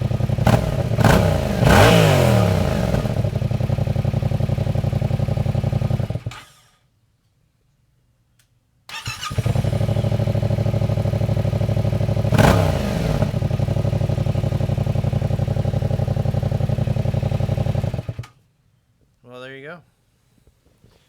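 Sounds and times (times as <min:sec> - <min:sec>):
motorcycle engine starting and idling: 0:00.0 - 0:06.8, 0:08.9 - 0:18.4.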